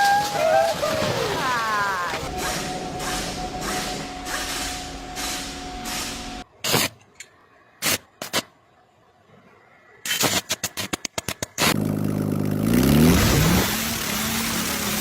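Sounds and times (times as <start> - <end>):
engine starting and revving: 11.7 - 15.0.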